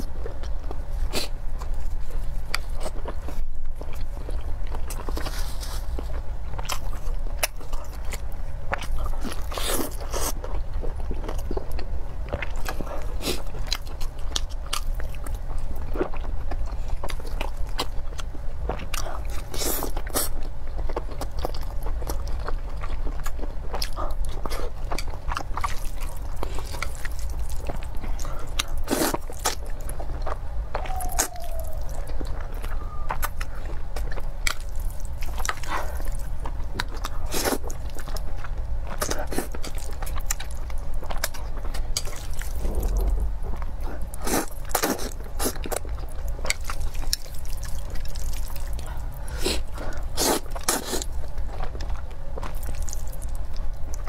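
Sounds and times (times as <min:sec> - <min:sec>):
steady low hum: 0:00.0 - 0:54.0
wet chewing and biting: 0:00.0 - 0:54.0.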